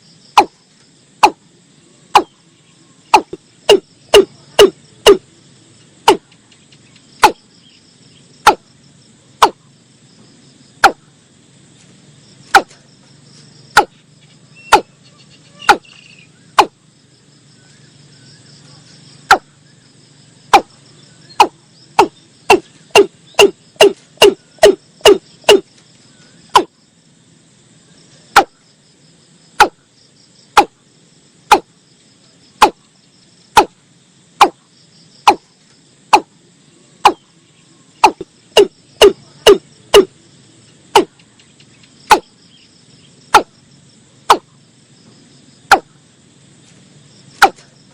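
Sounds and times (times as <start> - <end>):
faint insect trilling: 0.0 - 47.9
bird calling hollow notes: 2.1 - 2.4, 3.1 - 5.2, 13.8 - 16.8, 19.3 - 19.5, 21.3 - 25.7, 38.0 - 40.1.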